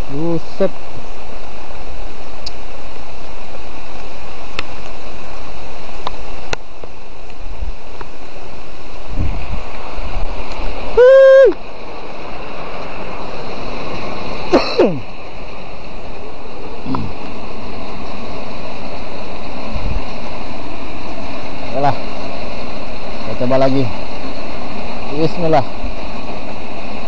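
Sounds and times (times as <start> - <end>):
heavy rain hissing: 0.0 - 27.0.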